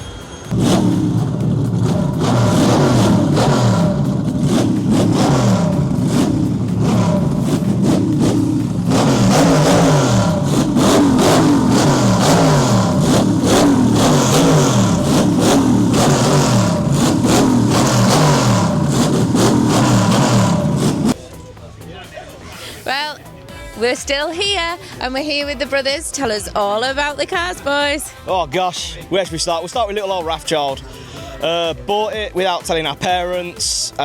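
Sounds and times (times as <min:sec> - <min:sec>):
car engine revving: 0:00.3 - 0:21.2.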